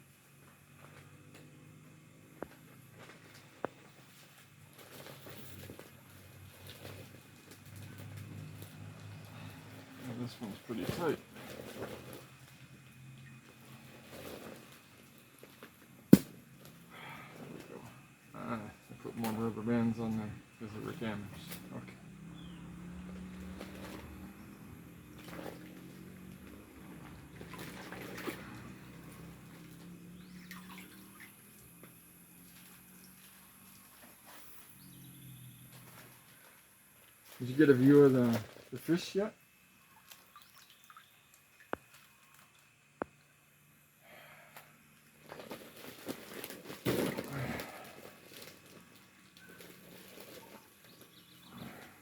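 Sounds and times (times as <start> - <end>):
steady low hum: 0.0 - 40.3
plastic bag rustling: 3.1 - 12.8, 13.5 - 16.7, 45.1 - 51.8
water splashing and pouring: 27.2 - 29.6, 30.3 - 31.6, 39.9 - 42.5.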